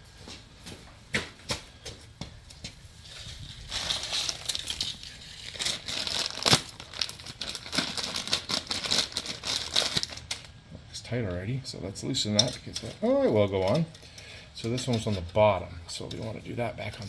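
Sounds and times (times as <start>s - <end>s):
plastic wrapping crinkling: 3.0s - 10.6s.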